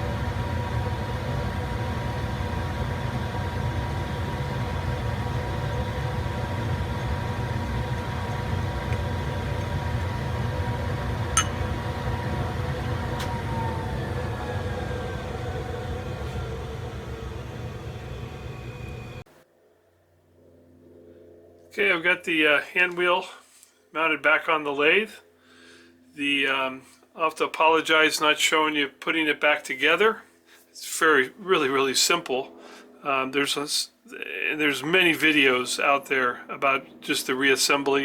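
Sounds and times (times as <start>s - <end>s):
metal lathe running: 0.0s - 19.2s.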